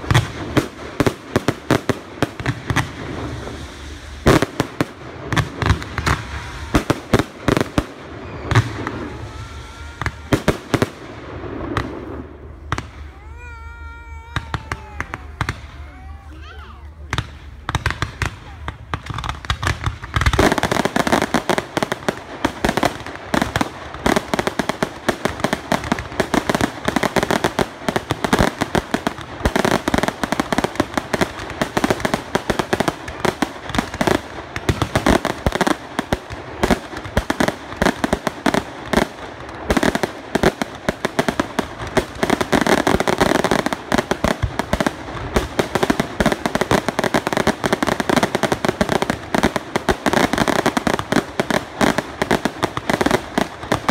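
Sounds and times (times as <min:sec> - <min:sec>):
fireworks bangs and crackling: 0:00.0 - 0:53.9.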